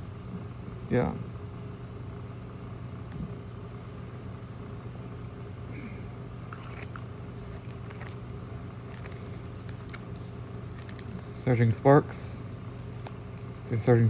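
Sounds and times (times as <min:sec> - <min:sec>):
steady low hum: 0:00.0 - 0:14.0
plastic packaging crinkling: 0:06.3 - 0:12.0, 0:12.7 - 0:14.0
crackles and clicks: 0:06.4 - 0:11.9.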